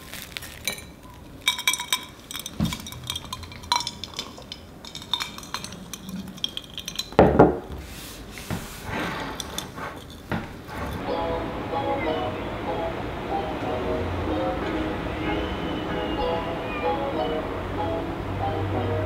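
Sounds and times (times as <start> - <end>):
toast crackling as torn: 0.0 - 2.2.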